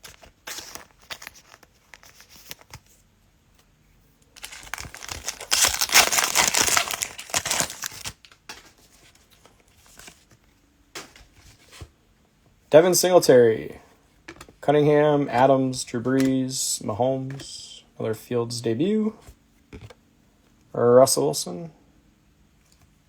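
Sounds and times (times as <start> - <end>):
plastic wrapper tearing and crinkling: 4.4 - 8.4.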